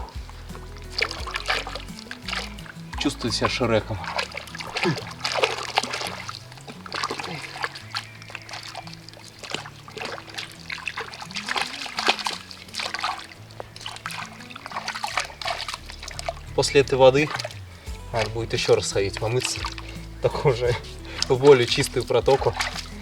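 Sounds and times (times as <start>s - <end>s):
water splashing and trickling: 0.0s - 23.0s.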